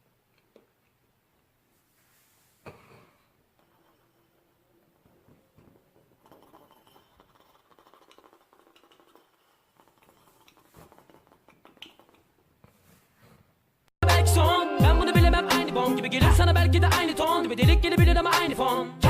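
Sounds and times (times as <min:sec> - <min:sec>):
rustles: 0:01.6 - 0:02.7.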